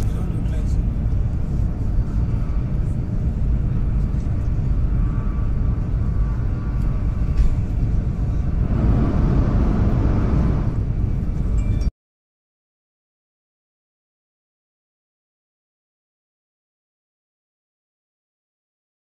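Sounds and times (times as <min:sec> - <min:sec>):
train cabin low rumble: 0:00.0 - 0:11.9.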